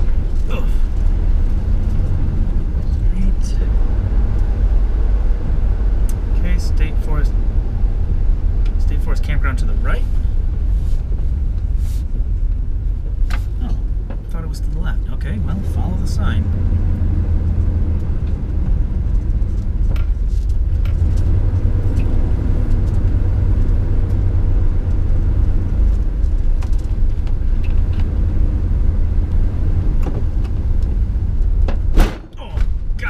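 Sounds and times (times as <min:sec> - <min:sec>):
engine and road noise rumble: 0:00.0 - 0:33.0.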